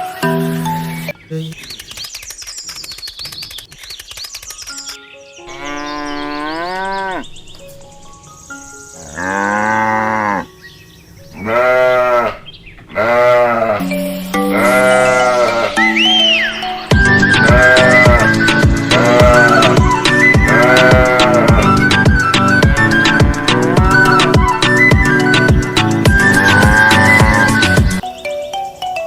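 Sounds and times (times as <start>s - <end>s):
long animal calls: 11.3s - 28.0s.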